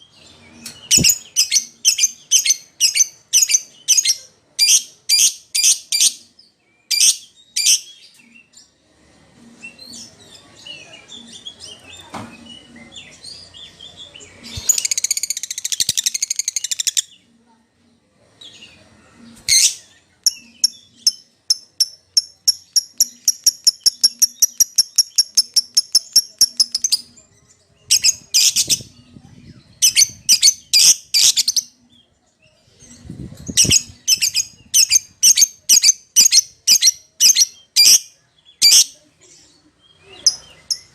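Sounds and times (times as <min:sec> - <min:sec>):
lovebirds calling shrilly: 0:00.3 - 0:06.3, 0:11.1 - 0:17.2, 0:19.4 - 0:27.2, 0:27.8 - 0:31.8, 0:32.7 - 0:39.0.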